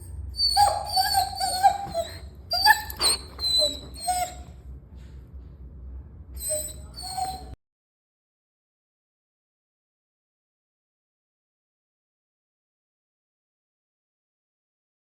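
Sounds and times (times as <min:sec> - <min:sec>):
puppy whining: 0:00.0 - 0:04.6, 0:06.4 - 0:07.6.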